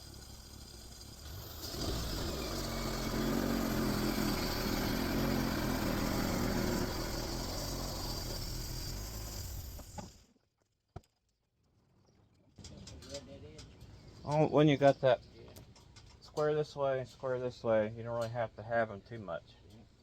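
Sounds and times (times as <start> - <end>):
sawmill engine running: 0.0 - 10.2.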